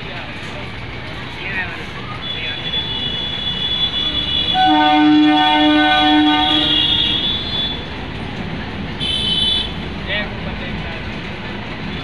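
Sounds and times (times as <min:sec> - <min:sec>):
rumble of rolling coaches: 0:00.0 - 0:12.0
train horn: 0:03.8 - 0:07.8.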